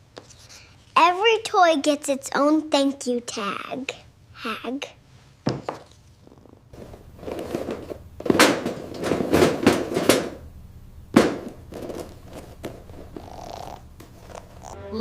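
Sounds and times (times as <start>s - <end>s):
sharp knocks and clatter: 6.8s - 10.4s, 11.1s - 13.3s.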